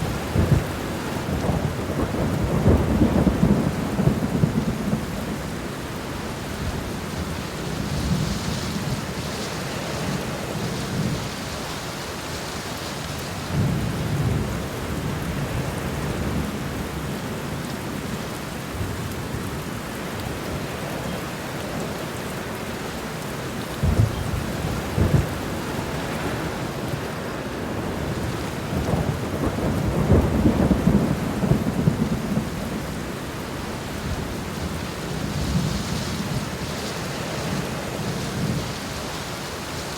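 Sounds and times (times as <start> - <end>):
rolling thunder rumbles: 0.0 - 5.7, 23.8 - 38.9
steady rain falling: 0.0 - 39.9.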